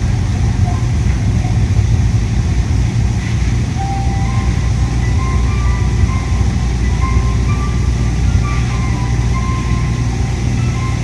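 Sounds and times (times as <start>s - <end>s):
air-conditioning noise: 0.0s - 11.0s
monorail train rumble from inside: 0.0s - 11.0s
faint tones at changing pitches: 3.8s - 11.0s.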